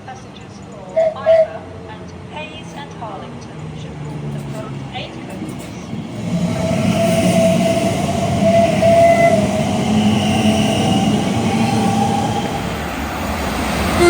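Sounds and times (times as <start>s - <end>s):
train passing at speed: 0.0s - 14.0s.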